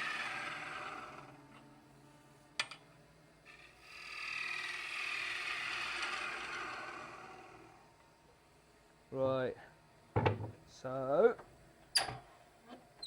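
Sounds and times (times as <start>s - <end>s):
gouge scraping spinning wood: 0.0s - 1.6s, 3.5s - 7.8s.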